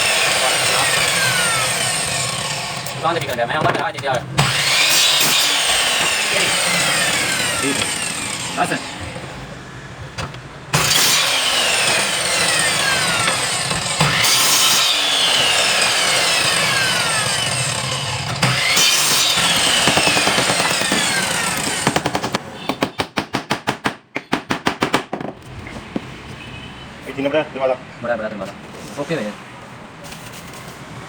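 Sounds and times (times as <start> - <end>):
power saw cutting wood: 0.0 - 22.5
rapid sharp knocks: 18.3 - 25.4.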